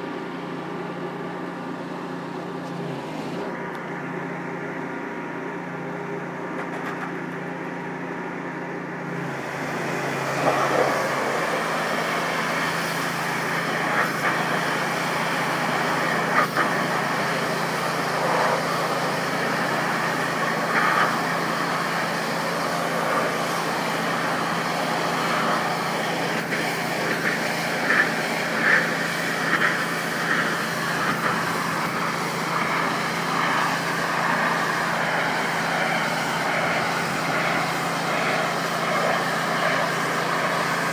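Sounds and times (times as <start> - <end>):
pressure washer motor running: 0.0 - 40.9
high-pressure water jet hissing: 9.1 - 40.9
spray spattering on wall: 9.2 - 40.9.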